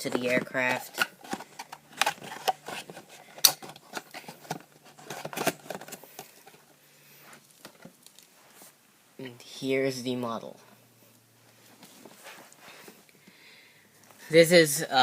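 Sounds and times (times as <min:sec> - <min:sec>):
plastic packaging crinkling: 0:00.0 - 0:06.7, 0:07.4 - 0:08.3.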